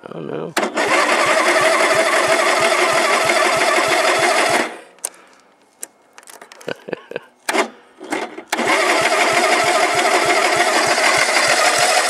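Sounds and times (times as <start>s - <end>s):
tractor engine cranking slowly: 0.6s - 5.2s, 7.4s - 12.0s.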